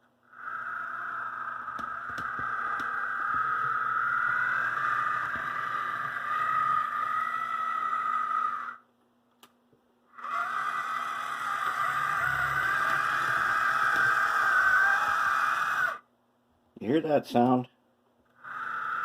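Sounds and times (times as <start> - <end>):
model locomotive motor whine: 10.2 - 16.0.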